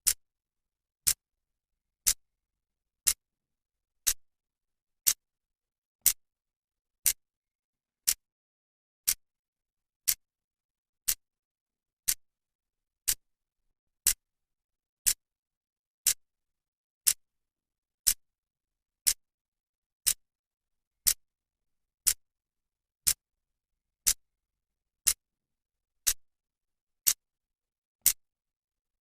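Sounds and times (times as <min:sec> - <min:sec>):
clock ticking: 0:08.0 - 0:08.2, 0:13.0 - 0:13.2.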